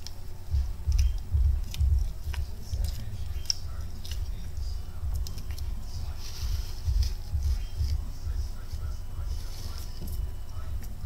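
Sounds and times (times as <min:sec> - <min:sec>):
person chewing crunchy food: 0:00.0 - 0:11.0.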